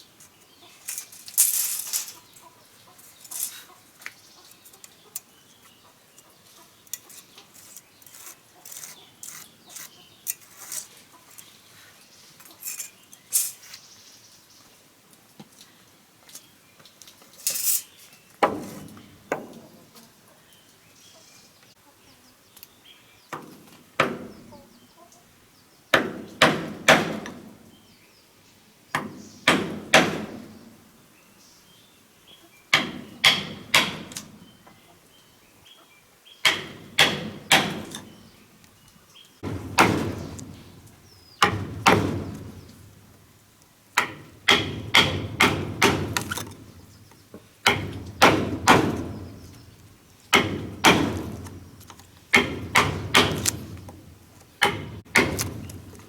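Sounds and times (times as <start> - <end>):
heavy blows on wood: 39.4 - 42.7, 47.6 - 49.5, 50.3 - 54.0.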